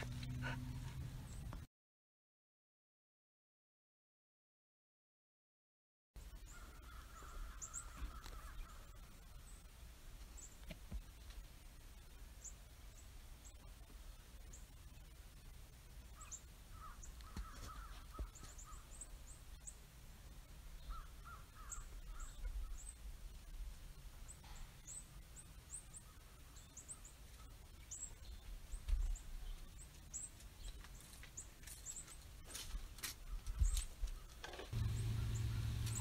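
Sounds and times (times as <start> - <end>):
lower bird calls: 6.4 - 9.7, 16.1 - 19.8, 20.8 - 23.0, 33.2 - 36.0
birds chip notes: 33.4 - 36.0.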